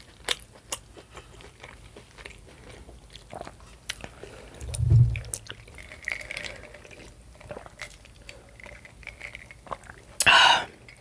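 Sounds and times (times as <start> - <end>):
chewing: 0.0 - 10.3
loud low thump: 4.6 - 5.4.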